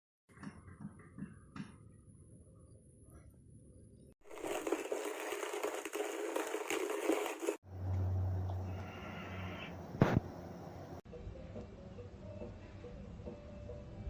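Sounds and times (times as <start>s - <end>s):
coffee grinder crunching beans: 4.2s - 7.6s.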